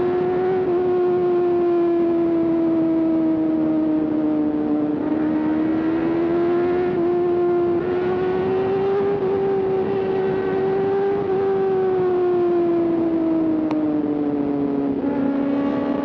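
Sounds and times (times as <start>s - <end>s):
high-revving motorcycle engine: 0.0s - 16.0s.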